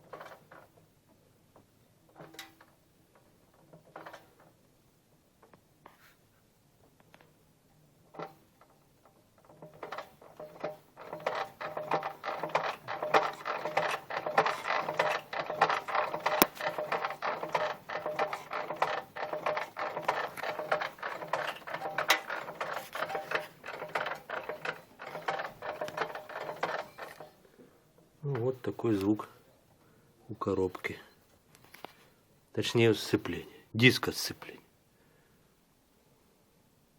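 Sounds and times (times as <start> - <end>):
fast metallic clatter: 9.4 - 27.4.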